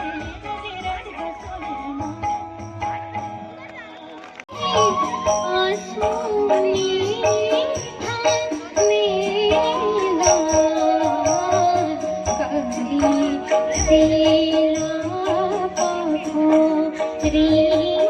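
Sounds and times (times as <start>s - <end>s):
steady percussion: 0.0s - 18.0s
woman singing folk song: 4.5s - 18.0s.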